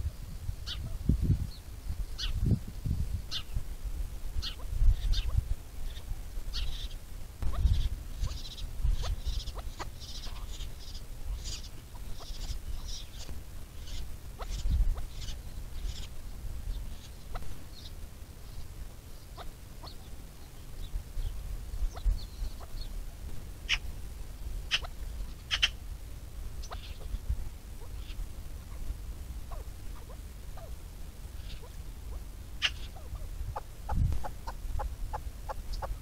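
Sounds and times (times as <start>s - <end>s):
sharp bird calls: 0.6s - 1.1s, 2.2s - 2.4s, 3.3s - 3.6s, 4.4s - 22.9s, 24.7s - 25.8s, 26.6s - 27.2s, 27.8s - 28.2s, 31.4s - 36.0s
birds chirping: 0.6s - 3.6s, 4.4s - 25.8s, 26.4s - 36.0s.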